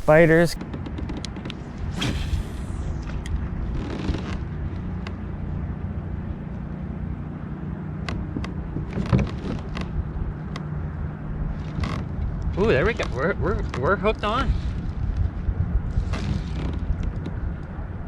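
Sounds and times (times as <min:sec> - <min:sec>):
brief swish: 0:02.0 - 0:03.2.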